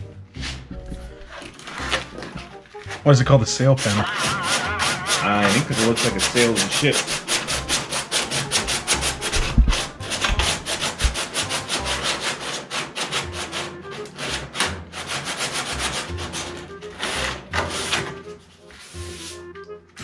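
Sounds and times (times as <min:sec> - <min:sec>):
sandpaper scrubbing metal panel: 0:01.6 - 0:19.5
dull low bumps: 0:09.4 - 0:11.2.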